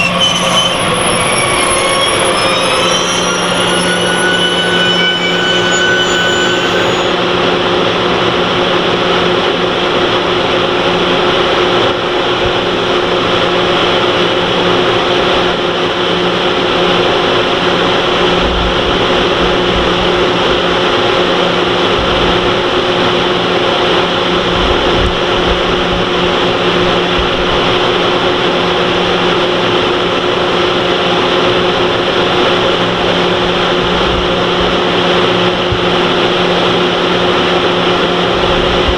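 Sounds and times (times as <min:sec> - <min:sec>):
train equipment humming: 0:00.0 - 0:07.3
high brake squeal: 0:00.0 - 0:07.6.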